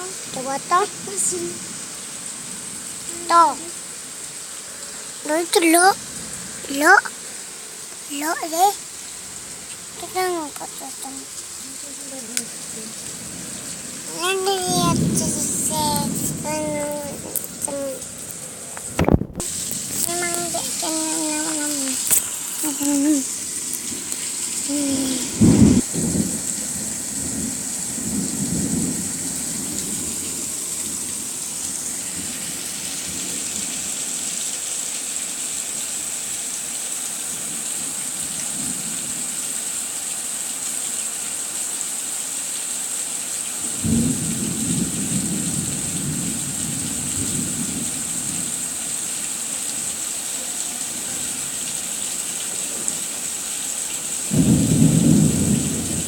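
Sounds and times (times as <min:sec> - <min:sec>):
heavy rain falling: 0:00.0 - 0:56.0
low thunder rumbles: 0:12.2 - 0:22.0, 0:25.0 - 0:31.1, 0:43.6 - 0:48.5, 0:54.3 - 0:56.0.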